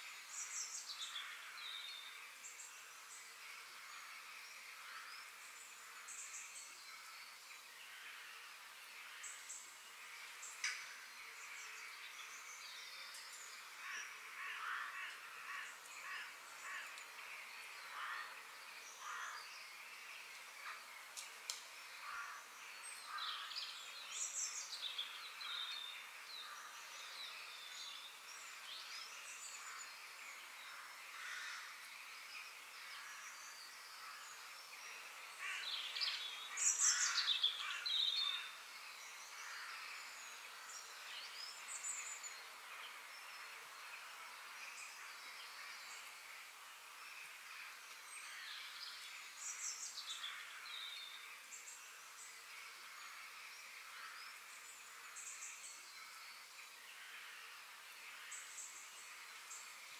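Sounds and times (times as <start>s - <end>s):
faint background hiss: 0.0s - 59.9s
birds chirping and calling: 35.3s - 38.6s.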